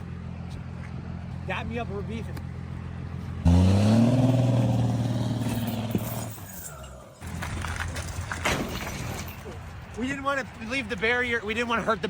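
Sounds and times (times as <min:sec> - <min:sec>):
car engine running steadily: 0:00.0 - 0:06.3
car engine revving: 0:02.8 - 0:06.4.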